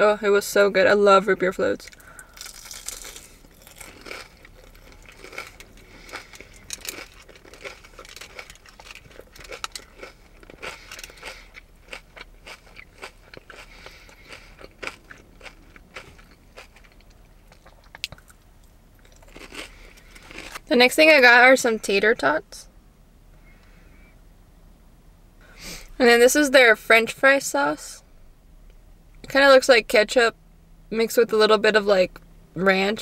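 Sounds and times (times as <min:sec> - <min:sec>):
person chewing crispy food: 0:01.9 - 0:20.7.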